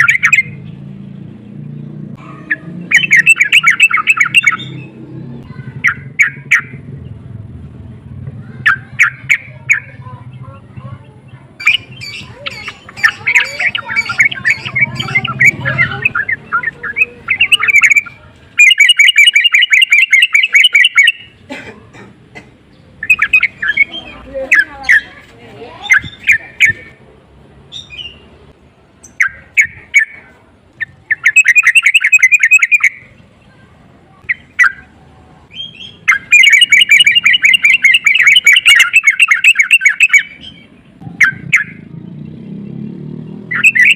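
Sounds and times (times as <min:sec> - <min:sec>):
bird singing bubbly phrases: 0:00.0 - 0:00.8, 0:02.4 - 0:07.2, 0:08.6 - 0:21.5, 0:22.7 - 0:25.1, 0:25.8 - 0:27.0, 0:29.0 - 0:33.5, 0:34.2 - 0:34.9, 0:35.5 - 0:42.5, 0:43.3 - 0:43.9.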